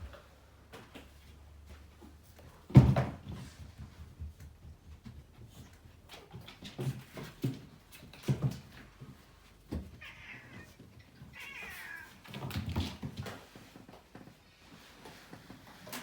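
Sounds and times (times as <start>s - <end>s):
cat meowing: 10.0s - 12.2s.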